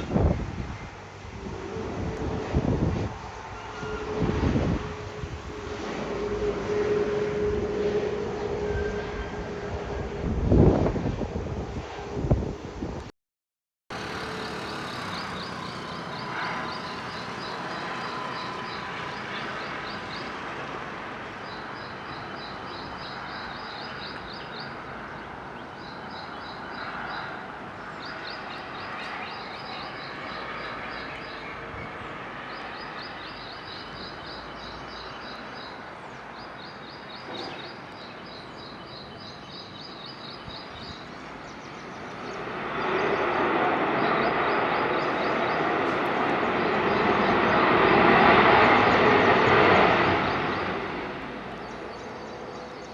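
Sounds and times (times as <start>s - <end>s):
outdoor rumble and hiss: 0.0s - 13.1s.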